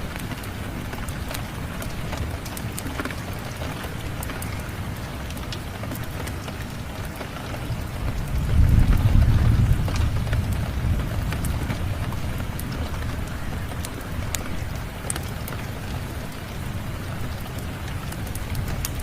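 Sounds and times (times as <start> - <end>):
steady rain: 0.0 - 19.0
wood fire crackling: 0.0 - 19.0
thunder rumbling: 8.0 - 14.8.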